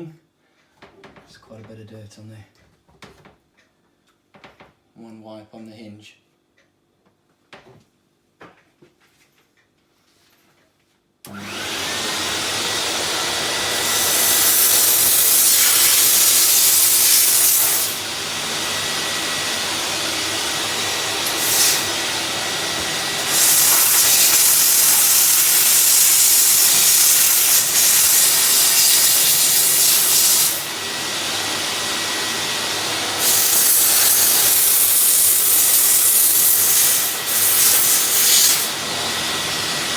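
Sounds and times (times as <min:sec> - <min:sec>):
steam cleaner hissing: 0:11.3 - 0:39.9.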